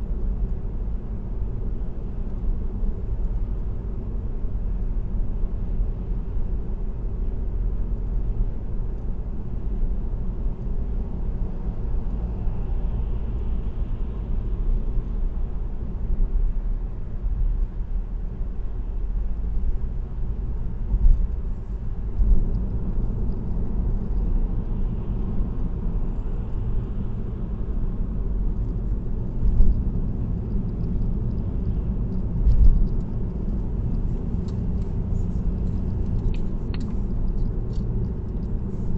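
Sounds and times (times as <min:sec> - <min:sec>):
road and tyre rumble: 0:00.0 - 0:38.9.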